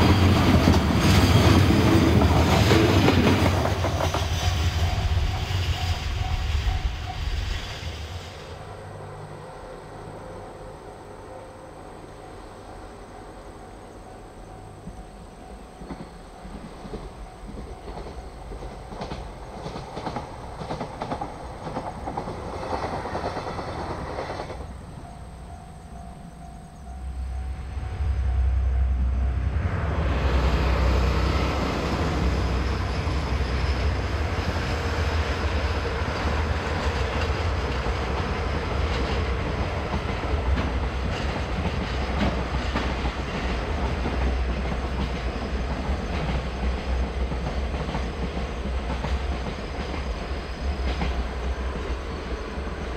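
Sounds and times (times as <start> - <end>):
diesel locomotive engine rumble: 0.0 - 52.9
freight wagons clattering on rails: 15.7 - 26.9.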